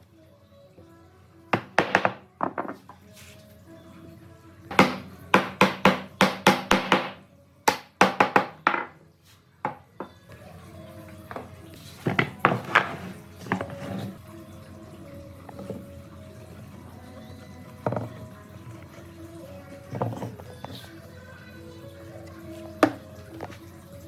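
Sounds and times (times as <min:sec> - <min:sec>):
soft background music: 0:00.0 - 0:24.0
sharp knocks on wood: 0:04.7 - 0:09.0.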